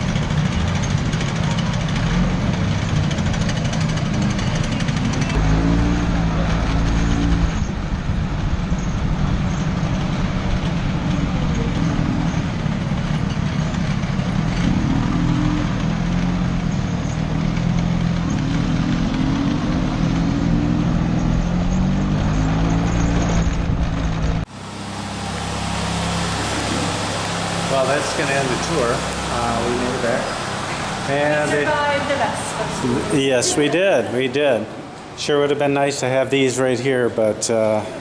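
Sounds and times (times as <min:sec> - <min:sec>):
scooter engine running: 0:00.0 - 0:33.9
wind rumble on microphone: 0:05.4 - 0:11.8.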